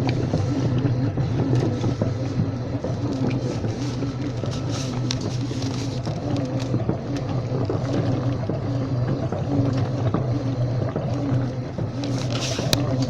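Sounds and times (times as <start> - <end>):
washing machine motor hum: 0.0 - 13.0
small clicks and knocks: 12.0 - 13.0.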